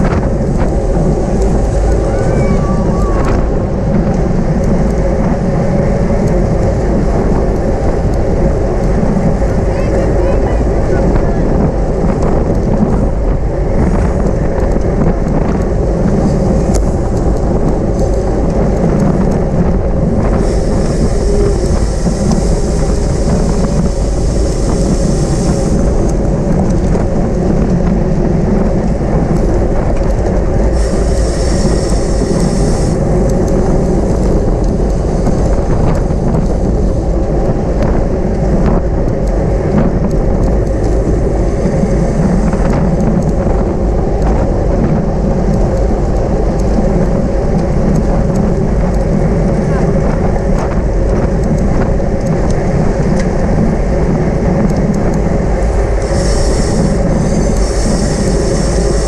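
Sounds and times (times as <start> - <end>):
wind rumble and road noise: 0.0 - 59.0
higher hiss: 30.7 - 33.0, 56.0 - 59.0.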